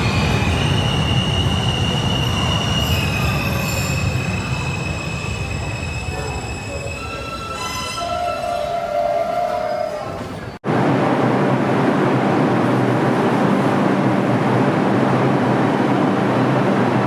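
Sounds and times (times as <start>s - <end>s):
subway wheels squealing: 0.0s - 10.6s.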